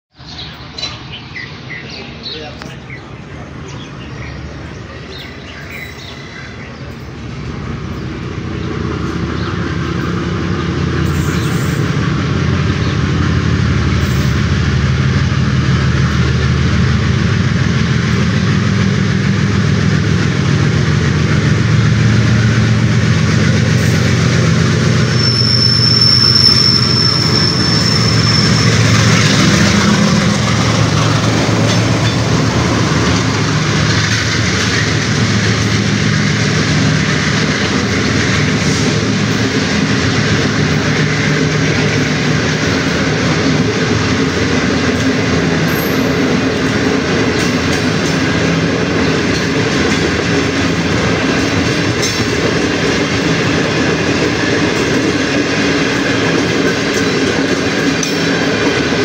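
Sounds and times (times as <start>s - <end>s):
diesel locomotive engine: 0.2s - 59.0s
high steady squeal: 24.8s - 32.2s
coaches rumbling and clattering: 26.7s - 59.0s.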